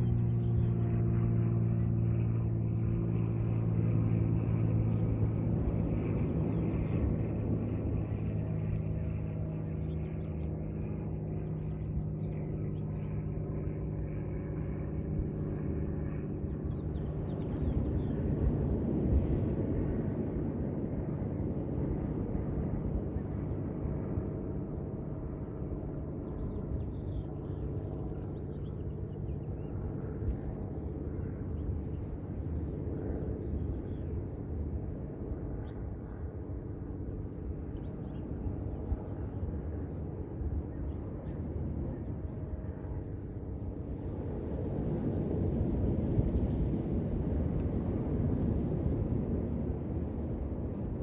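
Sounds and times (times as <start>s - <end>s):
low engine rumble with hum: 0.0s - 51.0s.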